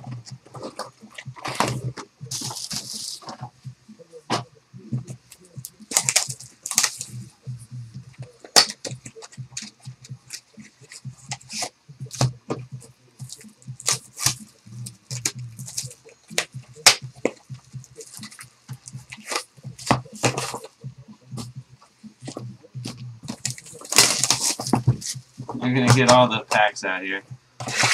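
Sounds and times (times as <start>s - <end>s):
plastic shrink wrap crackling: 1.7s - 3.4s, 5.9s - 7.1s, 23.3s - 25.0s
cardboard clicks and taps: 18.0s - 20.7s.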